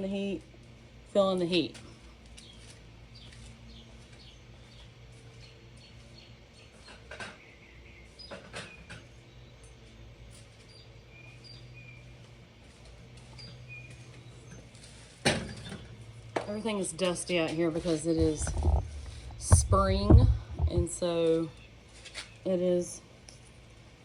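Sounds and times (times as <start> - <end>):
steady low hum: 0.0 - 24.0
soft knocks: 18.2 - 21.0.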